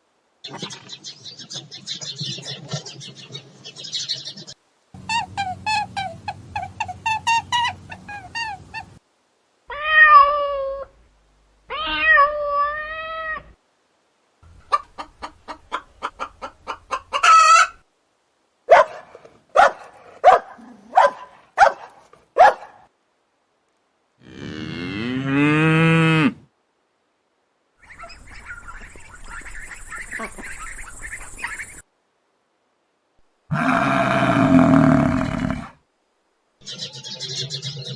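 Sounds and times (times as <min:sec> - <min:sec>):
cat meowing: 0:09.7 - 0:10.9, 0:11.7 - 0:13.5
farm animal calls: 0:33.5 - 0:35.8.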